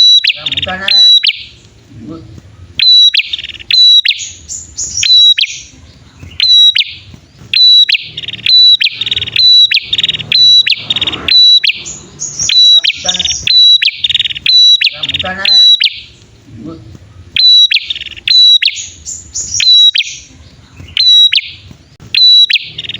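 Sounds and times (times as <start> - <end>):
birds sharp piercing chirps: 0.0 - 22.9
buzzy rattling bird trills: 0.0 - 22.9.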